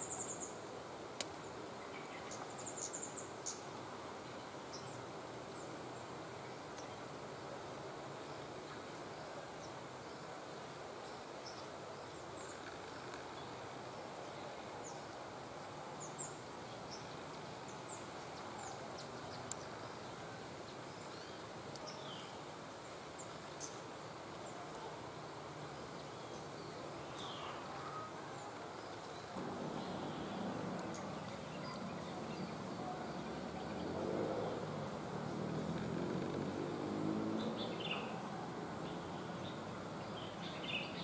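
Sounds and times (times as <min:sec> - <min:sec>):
forest ambience hiss: 0:00.0 - 0:41.0
small birds chirping: 0:16.0 - 0:24.9.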